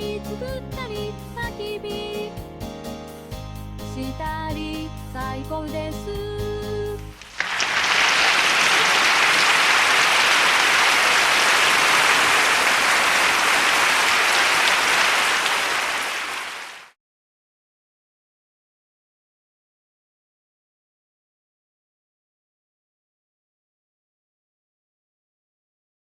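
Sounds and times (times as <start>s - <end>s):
audience applause: 7.2s - 17.0s.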